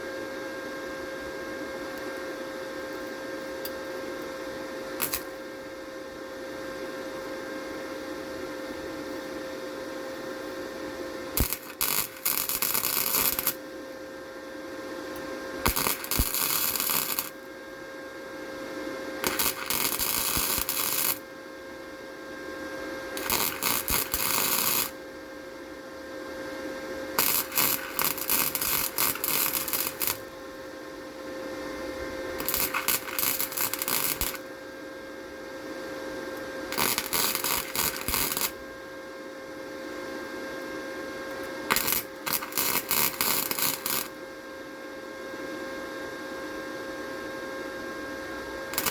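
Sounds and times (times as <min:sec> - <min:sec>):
steady welder hum: 0:01.6 - 0:06.3, 0:10.2 - 0:35.8, 0:36.4 - 0:39.2, 0:41.1 - 0:44.8, 0:48.7 - 0:48.9
crackling welding arc: 0:05.0 - 0:05.4, 0:11.4 - 0:13.6, 0:15.6 - 0:17.4, 0:19.2 - 0:21.2, 0:23.2 - 0:25.0, 0:27.2 - 0:30.3, 0:32.4 - 0:34.5, 0:36.7 - 0:38.6, 0:41.7 - 0:44.2.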